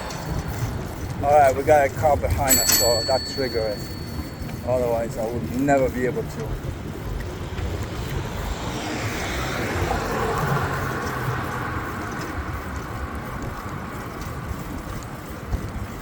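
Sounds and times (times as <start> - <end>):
road traffic: 0.0 - 16.0
wind buffeting microphone: 0.0 - 16.0
vehicle passing by: 7.4 - 13.2.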